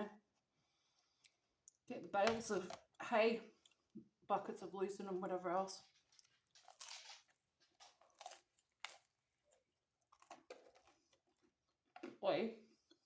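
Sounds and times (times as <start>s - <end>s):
person chewing food: 0.3s - 1.9s, 2.8s - 4.2s, 5.9s - 12.0s, 12.7s - 13.0s.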